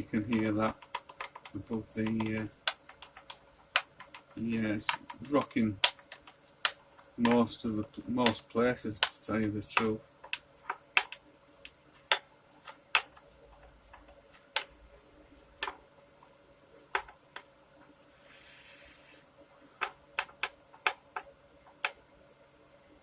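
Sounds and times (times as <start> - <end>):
short scraping hiss: 18.2 - 19.3.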